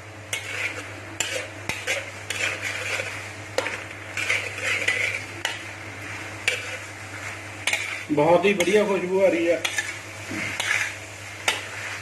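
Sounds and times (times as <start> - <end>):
frying sizzle: 0.0 - 12.0
utensil scraping and clinking pan: 0.3 - 5.6, 6.4 - 6.8, 7.6 - 9.0, 9.6 - 11.7.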